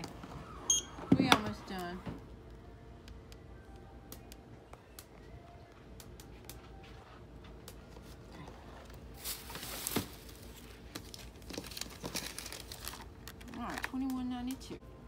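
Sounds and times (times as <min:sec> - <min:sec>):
faint steady hum: 0:00.0 - 0:15.0
plastic bags rustling: 0:08.9 - 0:14.5.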